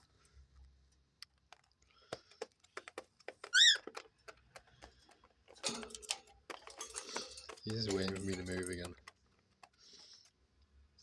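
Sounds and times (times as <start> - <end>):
birds scratching on paper: 1.9 - 5.8, 6.4 - 10.6
cockatiel chirp: 3.5 - 3.8.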